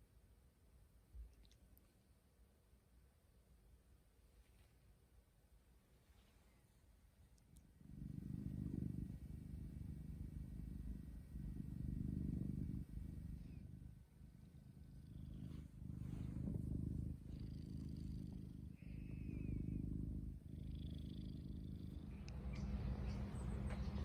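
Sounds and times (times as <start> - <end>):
cat purring: 5.8 - 24.0.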